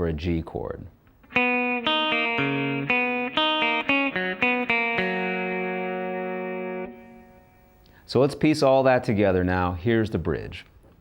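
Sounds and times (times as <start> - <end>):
guitar arpeggio: 1.2 - 7.7.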